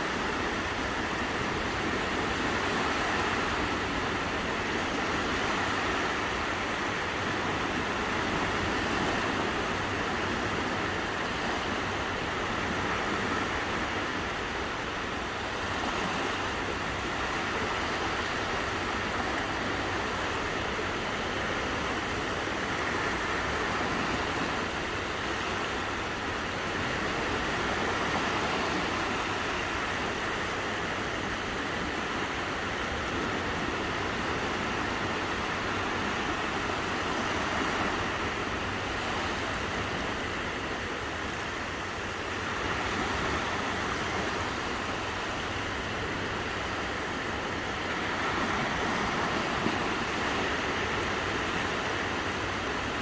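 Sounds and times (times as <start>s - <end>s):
waves washing onto beach: 0.0s - 53.0s
wind: 0.0s - 53.0s.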